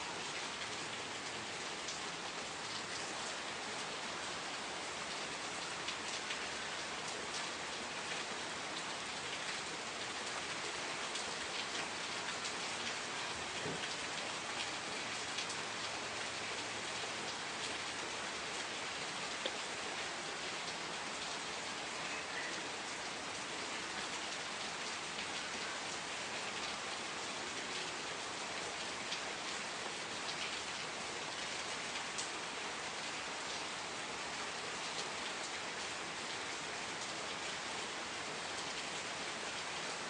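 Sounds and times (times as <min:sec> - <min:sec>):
rain pattering on a surface: 0:00.0 - 0:40.0.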